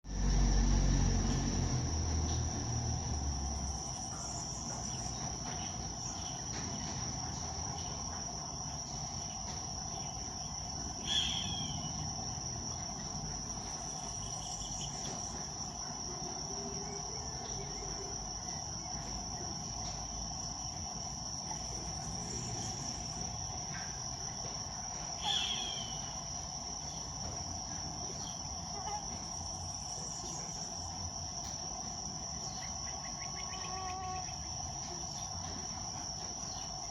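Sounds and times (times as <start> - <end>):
crickets or cicadas droning: 0.0 - 36.9
hawk calling: 11.0 - 11.8, 25.2 - 26.0.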